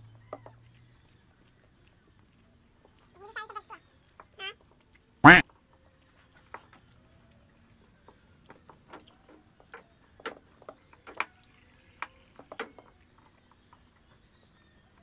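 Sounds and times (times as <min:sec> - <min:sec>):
mouth smacks and clicks from chewing: 0:00.2 - 0:09.9.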